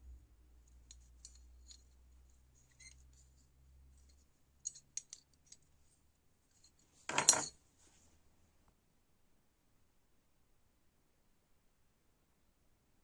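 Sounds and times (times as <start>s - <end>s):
metallic clatter: 7.1s - 7.5s.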